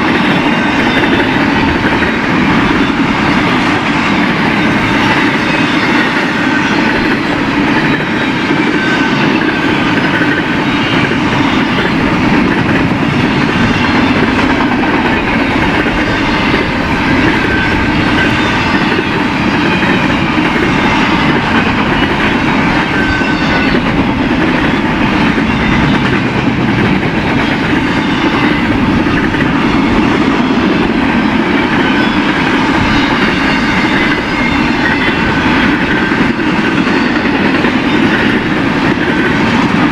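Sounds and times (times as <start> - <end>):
freight train rolling past: 0.0 - 39.9
wheel squeal: 4.4 - 26.3, 31.6 - 39.3.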